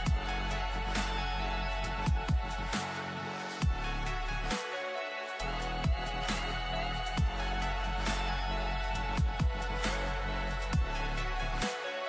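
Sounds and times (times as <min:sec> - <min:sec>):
chillstep music: 0:00.0 - 0:12.0
deep kick drum hits: 0:02.1 - 0:02.5, 0:09.2 - 0:09.6.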